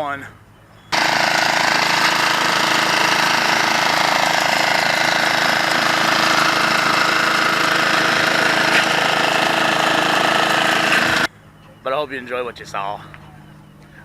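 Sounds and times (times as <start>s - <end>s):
engine running steadily: 0.9s - 11.6s.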